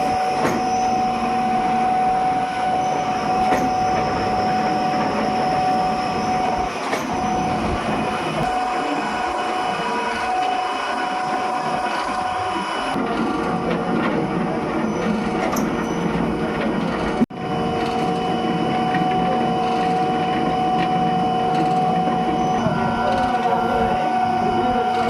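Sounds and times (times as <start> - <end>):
factory machinery clattering: 0.0 - 25.0
machinery hum: 0.0 - 25.0.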